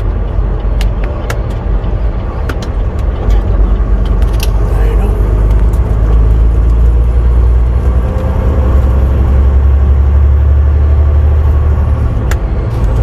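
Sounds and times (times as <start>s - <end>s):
truck diesel engine drone: 0.0s - 13.0s.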